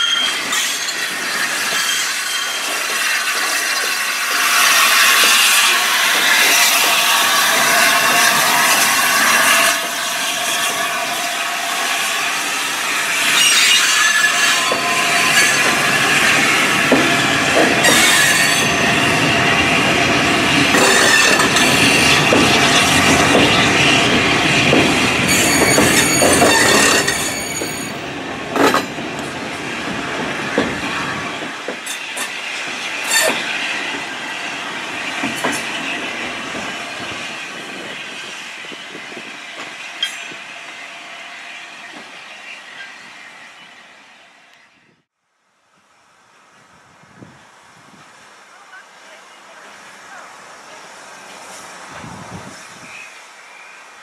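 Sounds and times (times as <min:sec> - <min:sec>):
wheels clicking over rail joints: 0:00.0 - 0:10.8, 0:13.2 - 0:19.2, 0:20.1 - 0:34.1
steel wheels squealing on rails: 0:00.0 - 0:45.1, 0:49.4 - 0:54.0.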